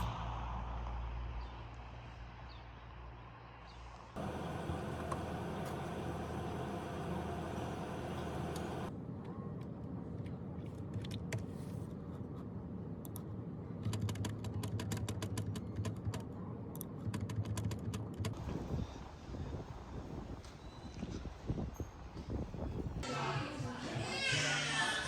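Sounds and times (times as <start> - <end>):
low steady hum: 4.2 - 9.3
typing on a keyboard: 13.8 - 18.4.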